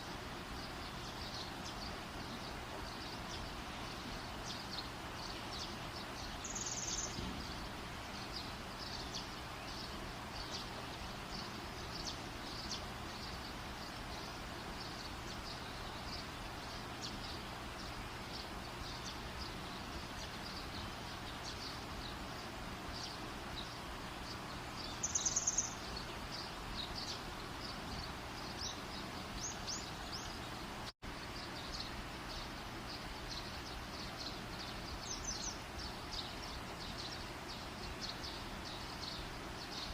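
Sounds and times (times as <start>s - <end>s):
campfire crackling and hissing: 0.0s - 34.2s
bird chirping trills: 0.0s - 39.9s.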